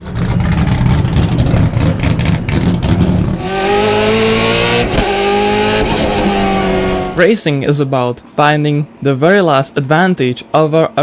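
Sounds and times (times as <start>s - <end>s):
racing car engine revving: 0.0s - 7.3s.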